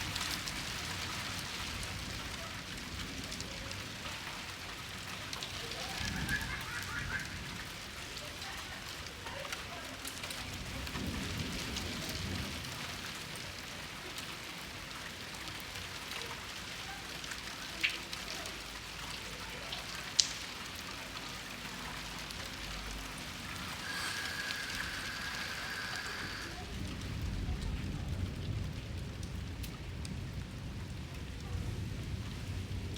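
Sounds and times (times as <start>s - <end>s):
heavy rain falling: 0.0s - 32.9s
high whistle-like tone: 23.7s - 26.6s.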